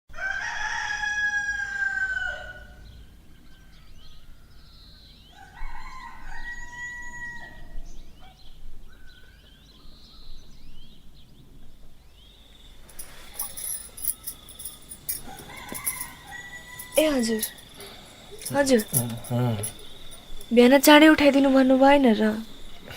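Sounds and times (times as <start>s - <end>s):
rooster crowing: 0.1s - 2.9s, 5.4s - 7.8s, 12.9s - 20.5s.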